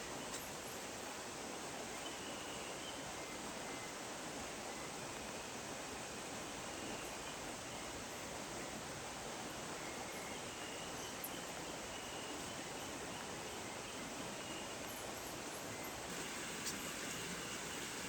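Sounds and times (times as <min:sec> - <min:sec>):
steady rain falling: 0:09.1 - 0:18.0.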